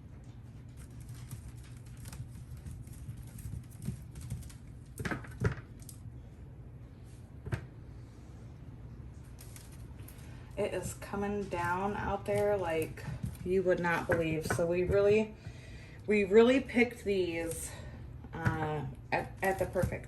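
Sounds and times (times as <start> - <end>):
potatoes clicking and rustling: 0.3 - 6.0, 9.2 - 15.2, 18.4 - 20.0
potatoes knocking: 10.6 - 15.5, 18.4 - 20.0.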